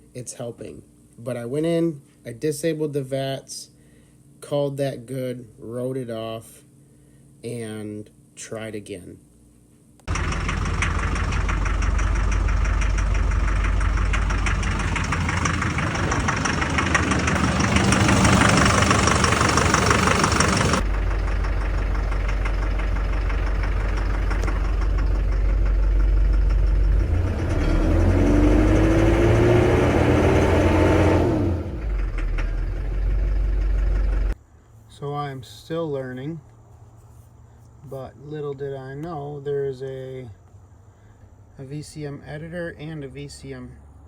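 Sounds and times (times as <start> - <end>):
diesel engine clattering: 10.1 - 34.4
rising tone: 10.2 - 33.5.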